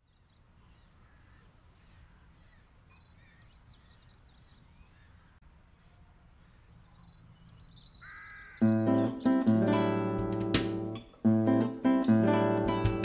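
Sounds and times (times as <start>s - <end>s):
small birds chirping and trilling: 0.0s - 10.0s.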